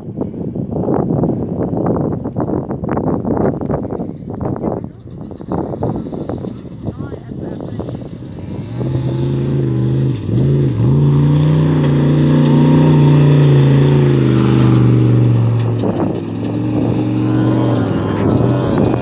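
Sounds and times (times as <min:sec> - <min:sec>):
truck engine running hard: 0:05.0 - 0:19.0.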